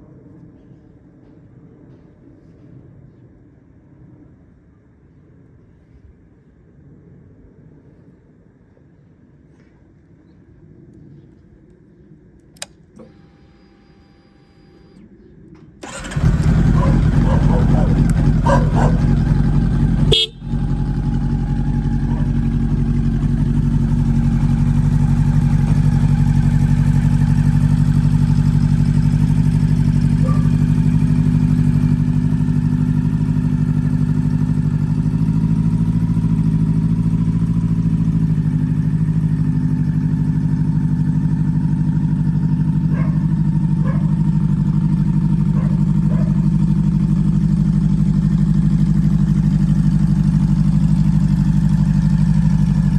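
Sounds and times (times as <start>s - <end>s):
motorcycle engine idling: 15.8s - 52.9s.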